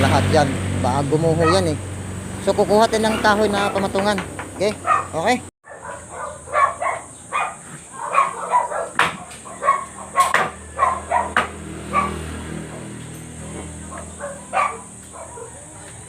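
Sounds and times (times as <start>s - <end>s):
dog barking: 1.3s - 1.8s, 4.8s - 16.0s
sharp knocks: 4.0s - 4.8s, 8.9s - 9.4s, 10.2s - 10.6s, 11.3s - 11.6s.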